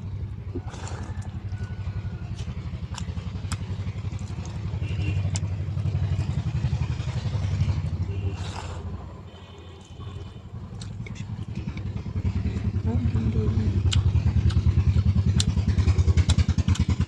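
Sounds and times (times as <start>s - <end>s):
low pulsing rumble: 0.0s - 9.1s, 10.1s - 17.0s
eating crunches: 0.6s - 6.6s, 10.7s - 12.0s, 13.8s - 17.0s.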